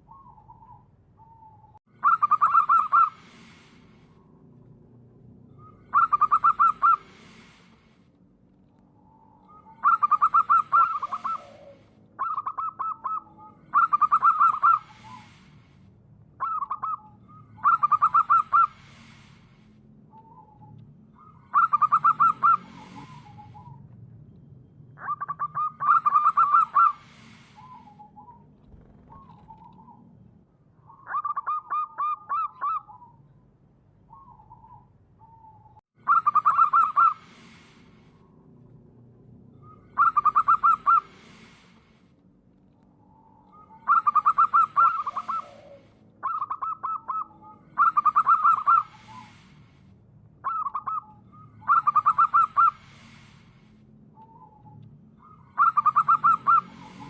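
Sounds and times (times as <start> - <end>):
dove cooing: 0.0 - 3.7, 5.6 - 7.6, 9.5 - 15.4, 16.4 - 19.3, 21.5 - 23.8, 25.0 - 30.0, 34.1 - 37.7, 39.6 - 41.7, 43.5 - 49.5, 50.4 - 52.8, 55.5 - 57.0.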